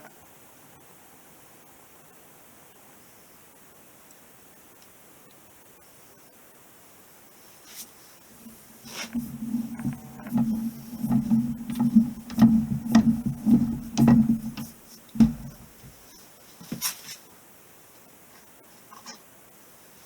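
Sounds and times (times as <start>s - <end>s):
steady low hum: 8.4s - 16.0s.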